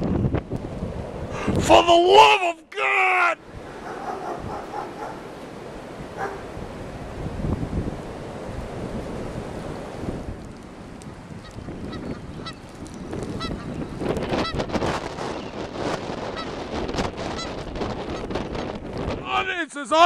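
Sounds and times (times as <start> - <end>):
blizzard wind on microphone: 0.0 - 2.4, 3.0 - 19.6.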